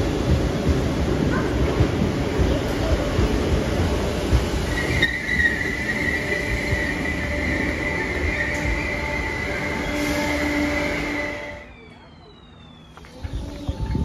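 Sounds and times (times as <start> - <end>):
electric train rumbling: 0.0 - 14.0
high wheel squeal: 4.6 - 11.7.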